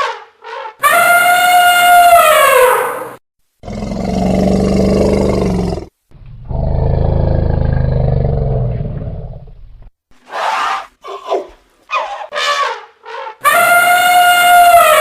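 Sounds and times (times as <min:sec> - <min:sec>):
elephant trumpeting: 0:00.0 - 0:03.2, 0:11.9 - 0:15.0
elephant low roars: 0:03.6 - 0:09.6.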